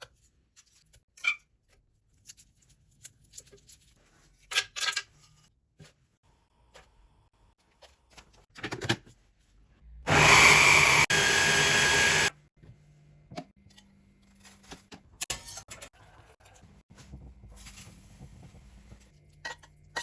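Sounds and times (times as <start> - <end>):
kitchen clicks and clatter: 8.5 - 9.2
kitchen appliance motor running: 10.1 - 12.3.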